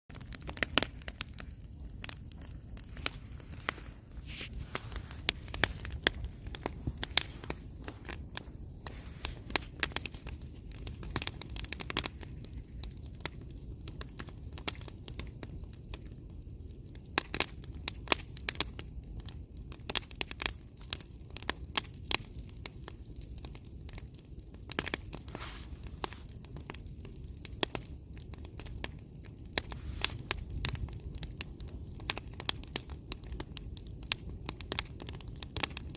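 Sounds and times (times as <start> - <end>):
bonfire crackling and popping: 0.1 - 35.9
steady low rumble: 1.7 - 11.1.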